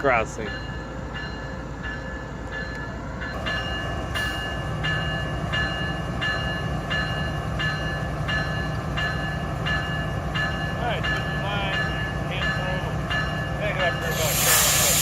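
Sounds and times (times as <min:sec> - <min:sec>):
diesel locomotives rumbling: 0:00.0 - 0:15.0
railroad crossing bell dinging: 0:00.0 - 0:15.0.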